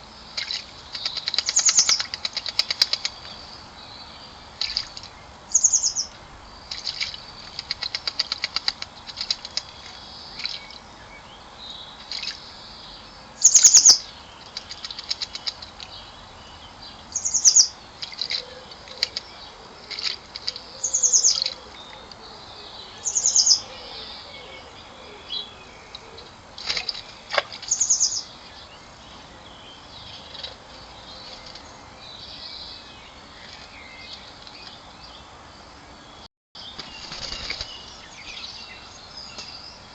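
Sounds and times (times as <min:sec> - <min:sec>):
bird high-pitched calls: 0:05.5 - 0:06.1, 0:13.4 - 0:15.5, 0:17.1 - 0:19.2.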